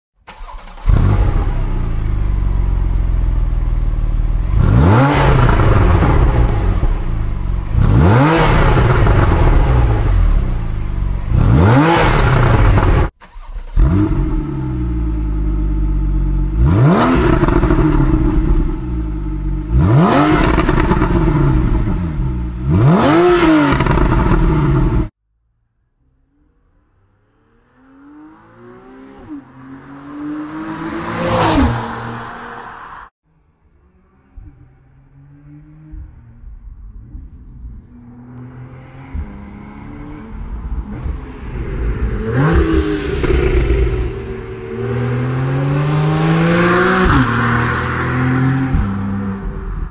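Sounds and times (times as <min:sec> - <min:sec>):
car engine revving: 0:00.3 - 0:25.2, 0:26.3 - 0:33.1, 0:33.7 - 0:49.9
faint engine sound: 0:33.3 - 0:46.2.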